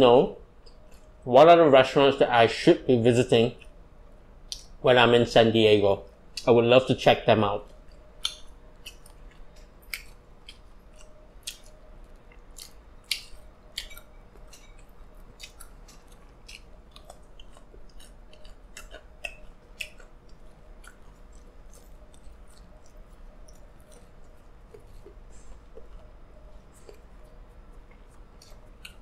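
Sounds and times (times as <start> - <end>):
chewing with wet clicks: 0.6 - 1.2, 4.4 - 4.8, 7.6 - 29.0.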